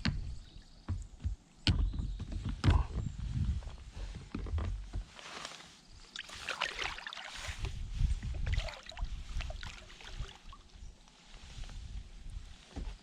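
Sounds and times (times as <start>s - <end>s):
low rumble gusts: 2.1s - 4.9s, 7.5s - 10.4s
water splashing around boat: 6.1s - 10.8s.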